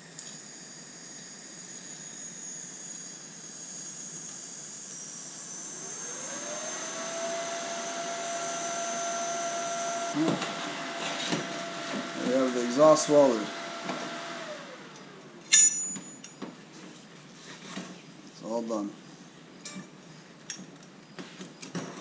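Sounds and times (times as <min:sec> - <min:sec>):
motor tone rising in pitch: 0:00.7 - 0:10.4.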